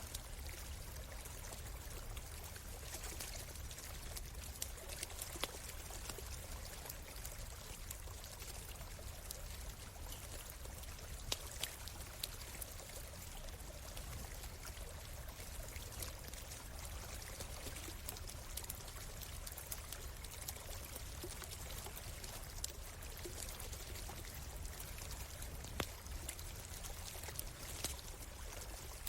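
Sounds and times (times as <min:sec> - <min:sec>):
stream running: 0:00.0 - 0:29.0
campfire crackling: 0:17.3 - 0:29.0.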